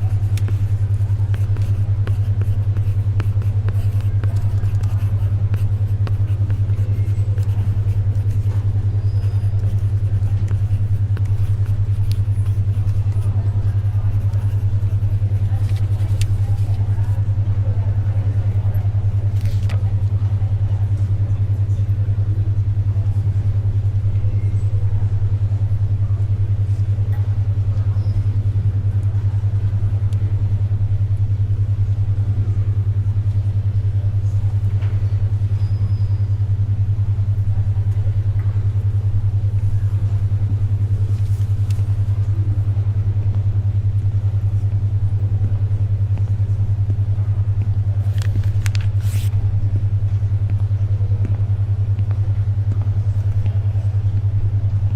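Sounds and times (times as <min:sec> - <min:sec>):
library ambience: 0:00.0 - 0:54.9
pulsing low humming tone: 0:00.0 - 0:54.9
paper rustling: 0:09.3 - 0:16.8, 0:48.0 - 0:49.3.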